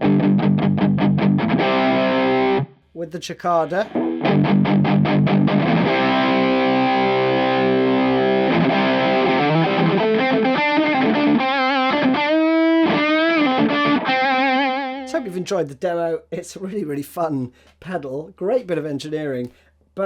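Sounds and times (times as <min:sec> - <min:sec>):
distorted electric guitar: 0:00.0 - 0:02.7, 0:03.8 - 0:15.1.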